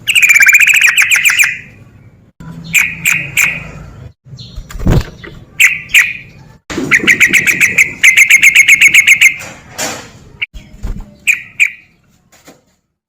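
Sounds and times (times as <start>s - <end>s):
bird singing bubbly notes: 4.4s - 9.3s.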